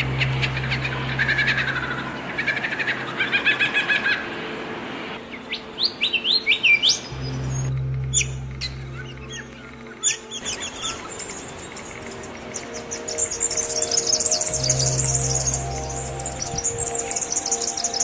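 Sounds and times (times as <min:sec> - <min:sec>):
low steady hum: 0:00.0 - 0:03.1, 0:07.0 - 0:18.0
songbirds chirping and trilling: 0:00.0 - 0:18.0.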